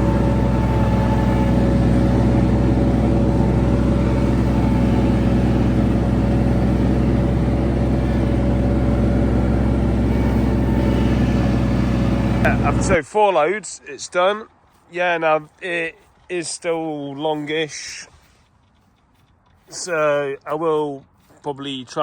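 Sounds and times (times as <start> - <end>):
ride-on mower engine droning: 0.0 - 13.0.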